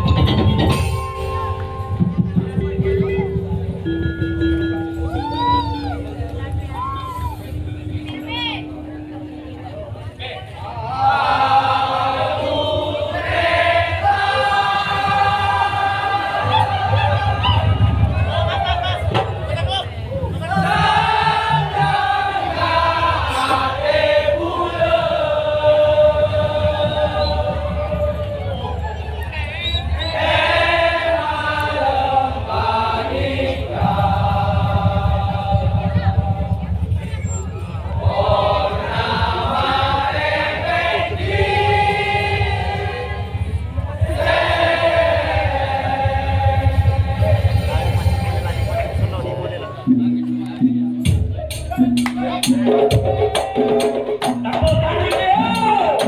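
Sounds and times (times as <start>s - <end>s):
low crowd noise: 0.0s - 56.0s
voices chanting in long notes: 4.8s - 19.4s, 20.2s - 50.6s
choir-like melody: 6.0s - 19.4s, 20.3s - 50.6s
steady low drum pulse: 13.1s - 23.3s, 30.4s - 56.0s.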